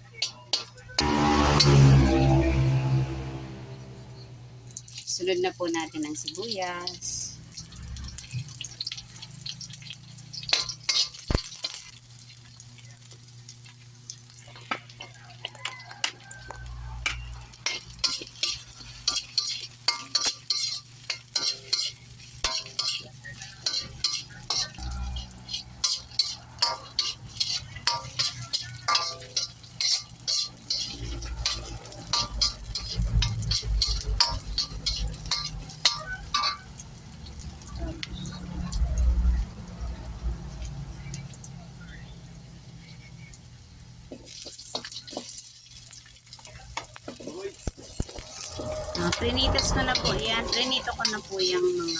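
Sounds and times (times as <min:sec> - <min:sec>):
onions sizzling in oil: 0:04.7 - 0:51.9
spatula scraping a pan: 0:14.5 - 0:36.8, 0:47.0 - 0:51.9.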